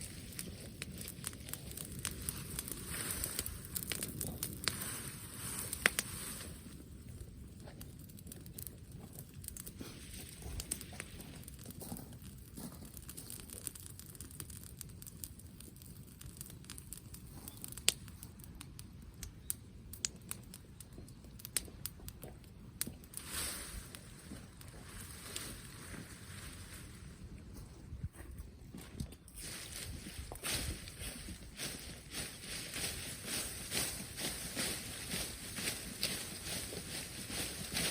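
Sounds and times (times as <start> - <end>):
bonfire crackling and popping: 0.0 - 37.9
steady low rumble: 18.3 - 37.9.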